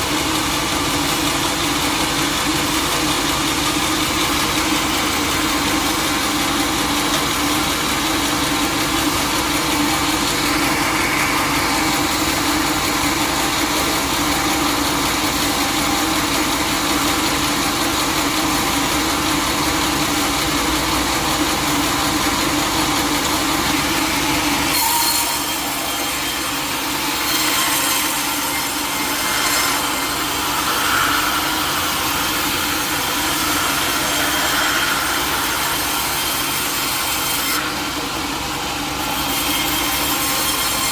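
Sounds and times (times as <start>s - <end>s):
saw blade cutting wood: 0.0s - 40.9s
saw machine humming: 0.0s - 40.9s.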